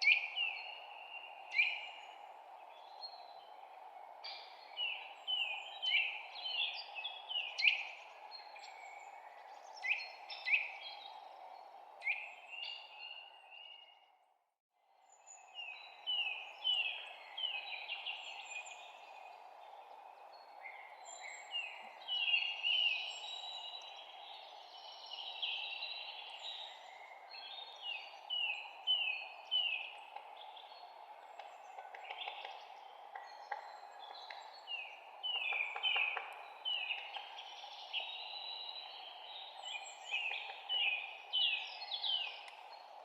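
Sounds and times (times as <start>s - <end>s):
songbirds chirping: 0.0s - 14.3s, 14.9s - 43.0s.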